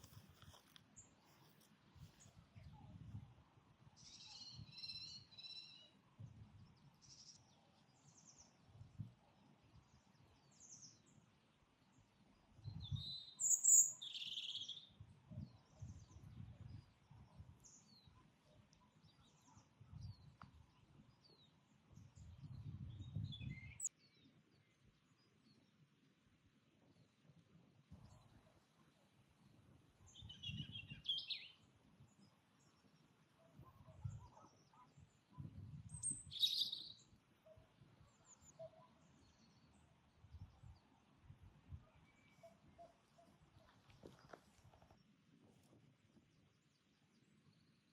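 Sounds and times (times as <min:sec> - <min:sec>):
birds singing and chirping: 0:12.9 - 0:14.7, 0:35.9 - 0:37.0.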